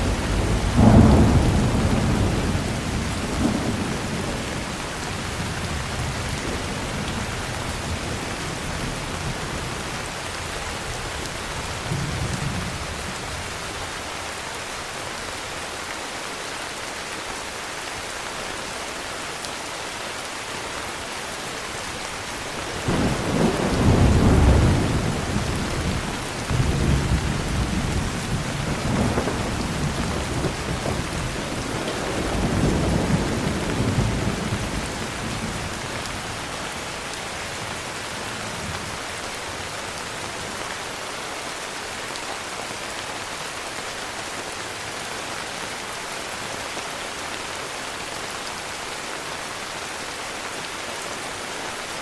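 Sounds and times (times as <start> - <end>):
thunder rumbling: 0.0 - 9.9, 22.6 - 36.8
heavy rain falling: 0.0 - 52.0.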